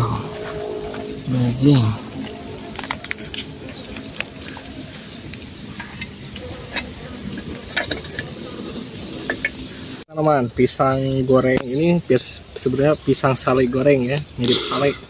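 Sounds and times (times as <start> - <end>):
food sizzling in hot oil: 0.0 - 10.0
oil crackling and popping: 0.0 - 10.0.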